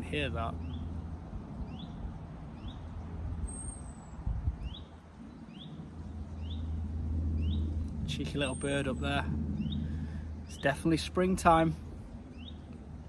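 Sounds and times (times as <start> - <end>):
songbird calling: 1.6 - 11.0, 11.8 - 12.7
low rumble: 4.1 - 13.0.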